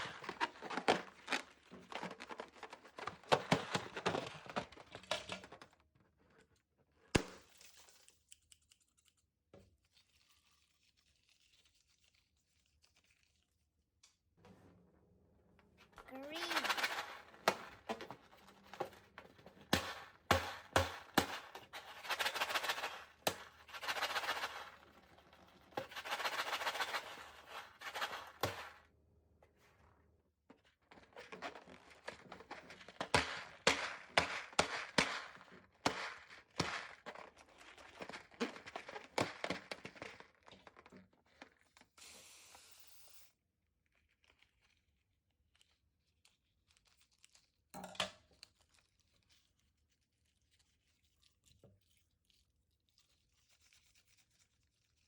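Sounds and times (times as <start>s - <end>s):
brief hiss: 42.0s - 43.3s.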